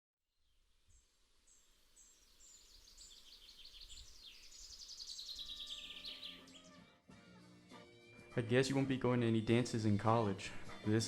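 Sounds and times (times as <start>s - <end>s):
birds chirping: 0.9s - 6.8s.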